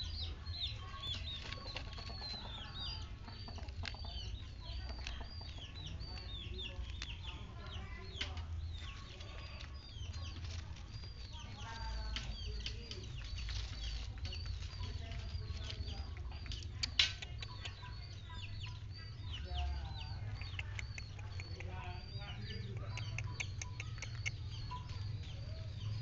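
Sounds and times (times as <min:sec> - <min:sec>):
birds chirping: 0:00.0 - 0:26.0
low clucking calls: 0:00.0 - 0:26.0.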